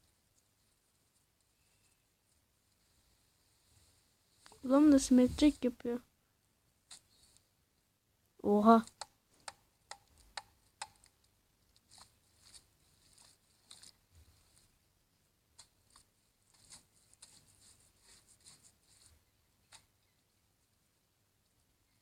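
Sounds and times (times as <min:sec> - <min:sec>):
faint clicks and crackles: 0:08.8 - 0:14.8, 0:15.5 - 0:20.3.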